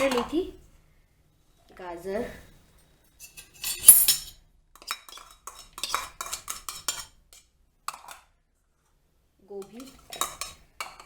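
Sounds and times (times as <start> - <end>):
spoon and bowls clinking: 3.2 - 7.1, 9.6 - 11.0.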